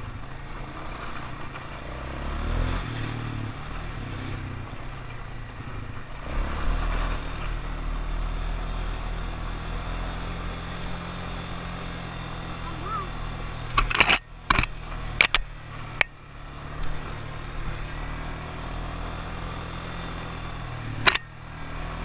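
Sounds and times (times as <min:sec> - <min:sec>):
atv engine revving: 0:00.0 - 0:22.0.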